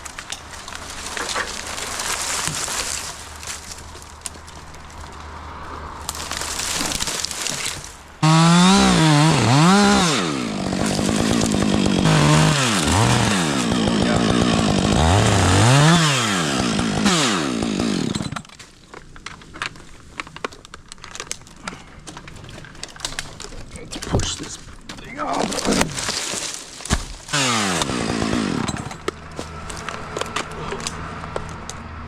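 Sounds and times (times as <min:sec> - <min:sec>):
chainsaw cutting wood: 0:06.9 - 0:18.6, 0:25.5 - 0:31.0.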